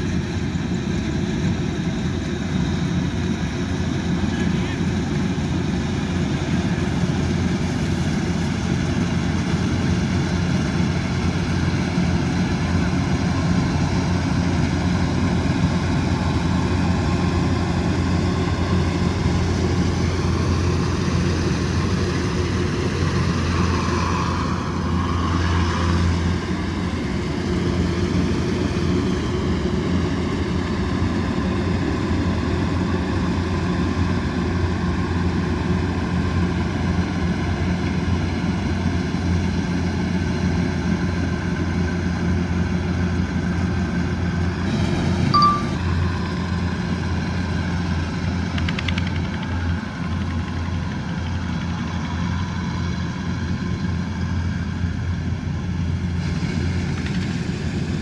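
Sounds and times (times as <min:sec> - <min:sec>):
combine harvester engine drone: 0:00.0 - 0:58.0.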